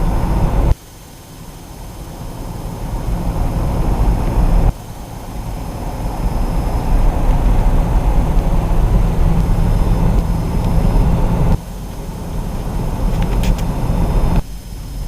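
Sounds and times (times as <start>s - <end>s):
road and wind noise in car: 0.0s - 15.0s.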